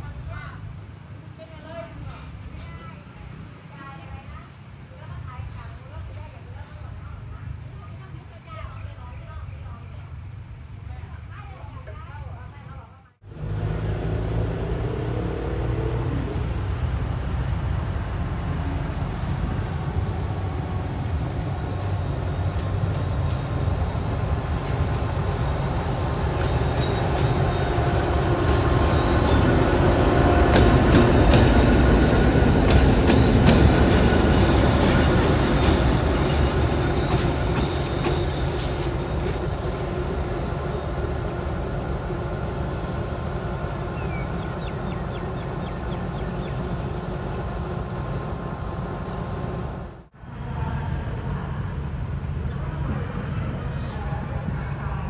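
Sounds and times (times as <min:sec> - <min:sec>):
train rumbling past: 0:00.0 - 0:55.0
wheels clicking on rail joints: 0:19.4 - 0:49.9.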